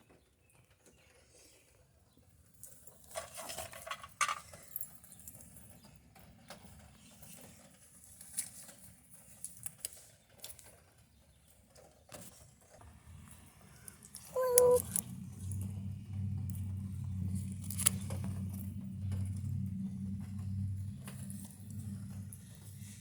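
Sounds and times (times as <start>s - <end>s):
light rain dripping: 12.3s - 23.0s.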